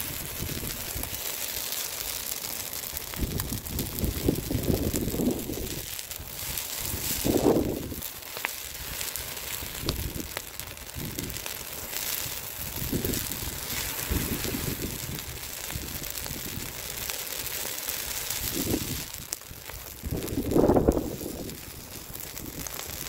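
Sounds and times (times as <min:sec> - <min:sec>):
wind gusting on microphone: 0:00.0 - 0:01.2, 0:03.1 - 0:08.1, 0:08.7 - 0:11.5, 0:12.2 - 0:16.8, 0:18.3 - 0:19.2, 0:19.9 - 0:23.0
bonfire hissing: 0:00.0 - 0:23.0
fire crackling and popping: 0:00.0 - 0:23.0.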